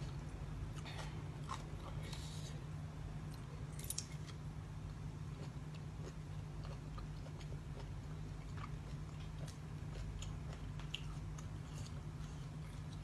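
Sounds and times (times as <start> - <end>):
steady low hum: 0.0 - 13.0
chewing and biting food: 5.3 - 13.0.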